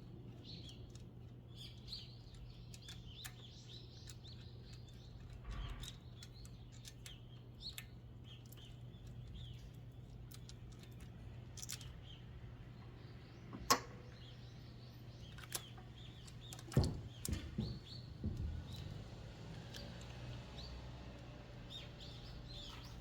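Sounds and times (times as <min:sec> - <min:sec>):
small birds chirping: 0:00.0 - 0:23.0
sharp click: 0:13.5 - 0:14.0
knocks and clunks: 0:16.5 - 0:19.1.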